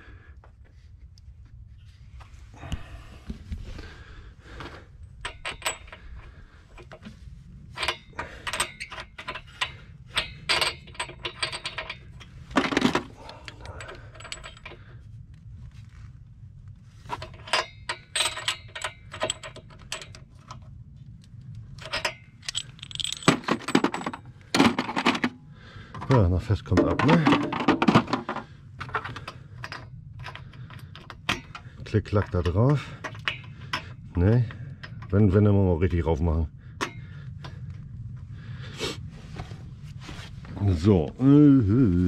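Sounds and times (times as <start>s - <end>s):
low hum: 0.0s - 42.0s.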